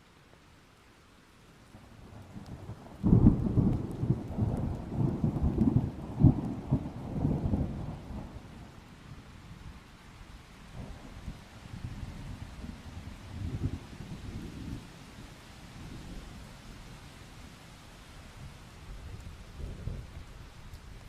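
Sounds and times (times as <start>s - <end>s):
faint rain hiss: 0.0s - 21.0s
thunder rumbling: 2.1s - 8.5s, 18.9s - 21.0s.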